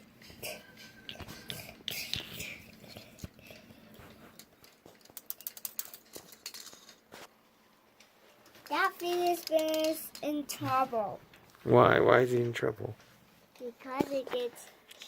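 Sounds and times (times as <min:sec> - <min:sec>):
plastic fidget spinners rattling: 0:00.2 - 0:07.0, 0:08.4 - 0:11.4, 0:13.5 - 0:15.0.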